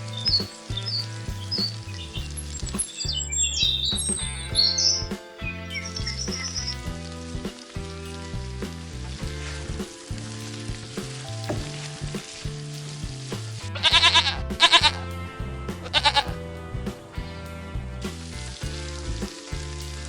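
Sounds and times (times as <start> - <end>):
background music: 0.0 - 20.0
goat bleating: 15.9 - 16.3.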